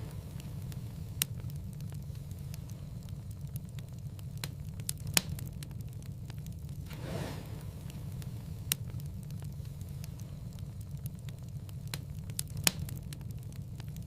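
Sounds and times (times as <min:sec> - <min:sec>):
low rumble of flames: 0:00.0 - 0:14.0
sharp pops and snaps of fire: 0:00.0 - 0:14.0
wood fire crackling: 0:00.0 - 0:14.0.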